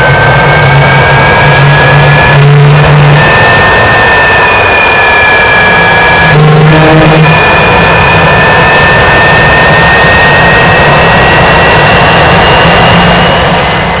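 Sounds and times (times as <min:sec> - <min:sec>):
high-pitched rising whine: 0:00.0 - 0:14.0
jet engine roaring: 0:00.0 - 0:14.0.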